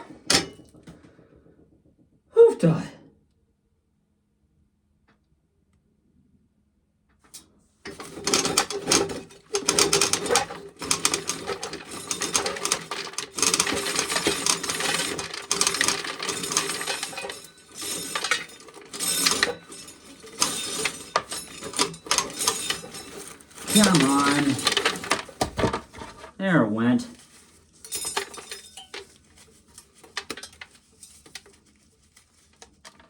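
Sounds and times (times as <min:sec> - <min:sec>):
corn sheller rattling: 0:07.9 - 0:26.3, 0:27.1 - 0:33.0.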